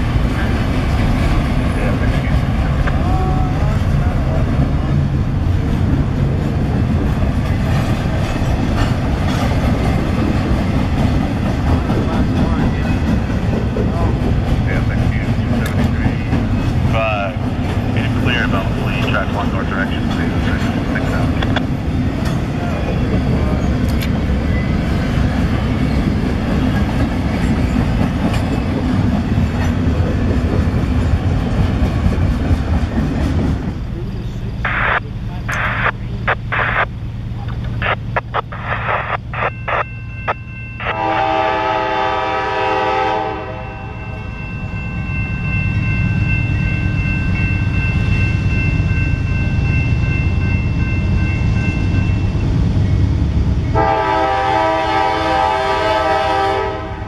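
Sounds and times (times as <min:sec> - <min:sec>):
diesel locomotives rumbling: 0:00.0 - 0:57.0
freight wheels rumbling on rail: 0:00.0 - 0:57.0
train horn blast: 0:40.8 - 0:44.1, 0:53.7 - 0:57.0.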